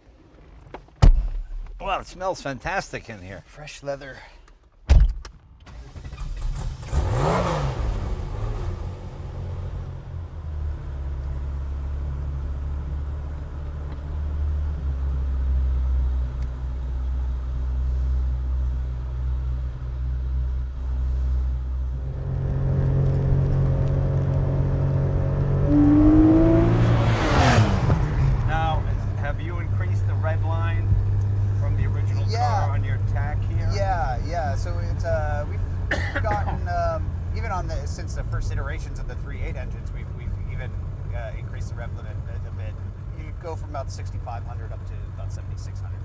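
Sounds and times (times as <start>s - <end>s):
car engine starting and running: 5.1s - 46.0s
car accelerating on road: 6.0s - 19.8s, 20.4s - 35.9s.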